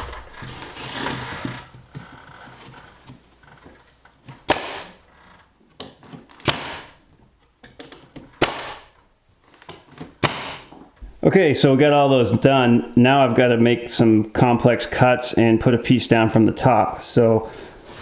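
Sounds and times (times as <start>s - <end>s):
hammer striking nails into wood: 4.5s - 5.0s, 6.4s - 7.0s, 8.4s - 8.9s, 10.2s - 10.8s.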